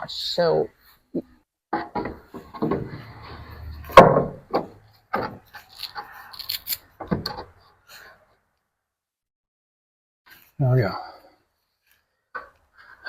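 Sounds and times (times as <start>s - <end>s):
wooden boards knocking: 1.7s - 5.4s
wood rattling: 1.7s - 5.6s
wood scraping on wood: 1.8s - 7.5s.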